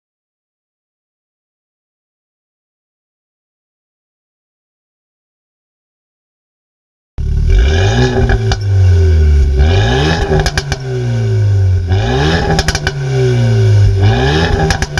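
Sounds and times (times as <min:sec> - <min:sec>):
car engine revving: 0:07.2 - 0:14.9
exhaust crackles popping: 0:07.2 - 0:14.9.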